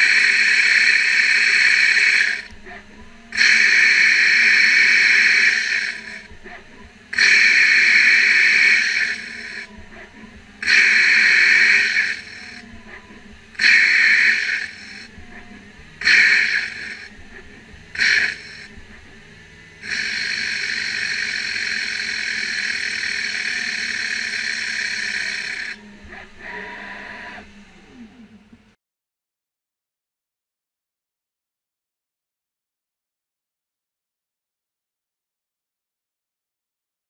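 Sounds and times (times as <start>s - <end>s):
hissing: 0.0s - 2.6s, 3.3s - 6.4s, 7.1s - 9.7s, 10.6s - 13.0s, 13.6s - 18.8s, 19.8s - 27.5s.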